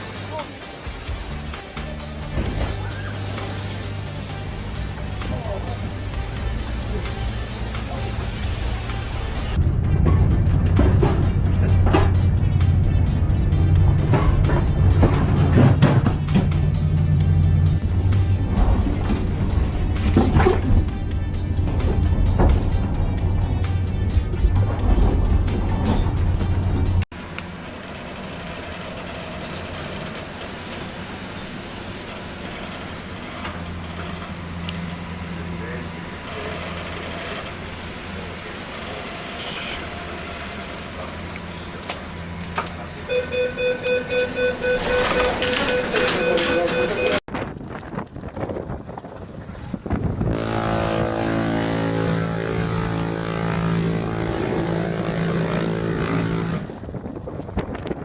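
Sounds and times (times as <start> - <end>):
even hiss: 0.0 - 9.6
rushing noise: 0.0 - 15.6, 16.2 - 47.2
low mechanical drone: 0.0 - 58.0.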